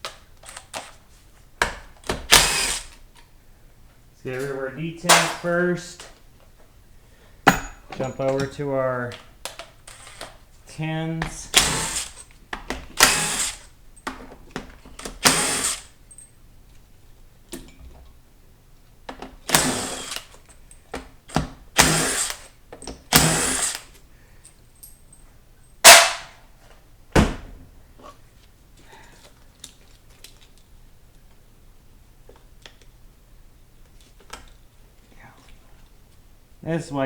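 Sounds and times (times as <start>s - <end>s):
sharp metal knocks: 7.5s - 8.4s.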